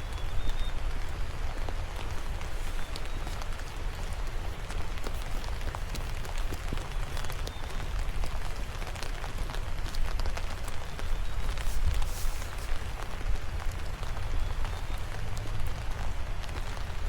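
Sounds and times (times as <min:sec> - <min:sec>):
raindrops ticking: 0:00.0 - 0:17.0.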